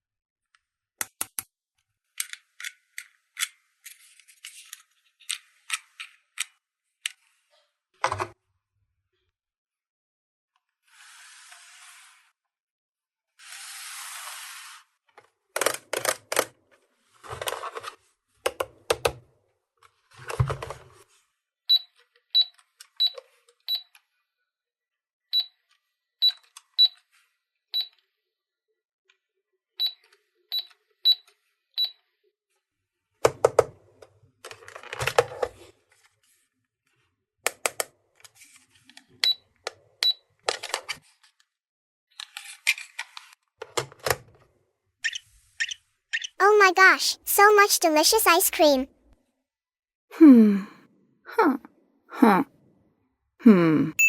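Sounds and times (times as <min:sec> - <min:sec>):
plastic toy pieces clicking: 0:02.2 - 0:04.1.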